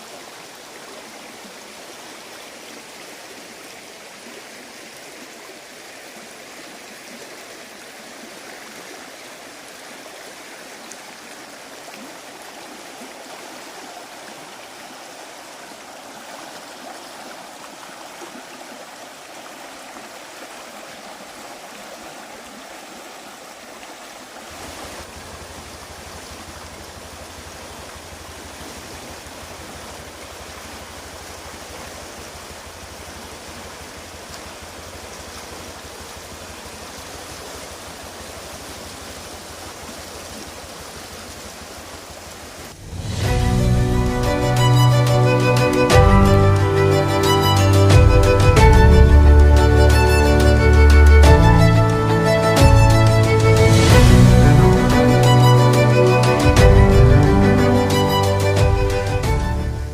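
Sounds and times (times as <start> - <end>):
river water rushing: 0.0 - 59.9
deep low rumble: 52.7 - 55.1.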